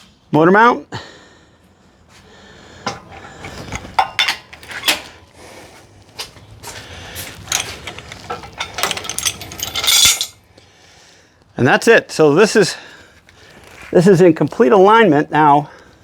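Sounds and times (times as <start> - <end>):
metallic clicks and clanks of tools: 2.8 - 5.1, 7.4 - 10.4.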